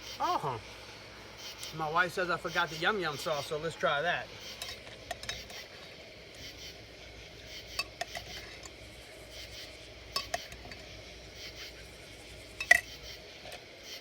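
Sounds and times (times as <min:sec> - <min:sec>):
cutlery clinking against a dish: 0:04.6 - 0:05.6, 0:10.2 - 0:10.8, 0:12.6 - 0:12.9.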